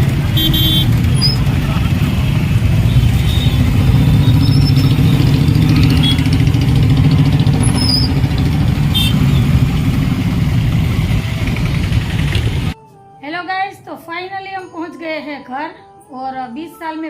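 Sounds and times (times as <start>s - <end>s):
vehicle engine and road rumble: 0.0s - 12.8s.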